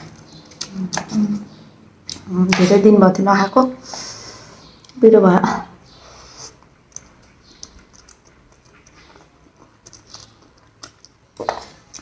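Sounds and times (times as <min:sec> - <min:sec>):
person chewing noodles: 0:05.8 - 0:12.0.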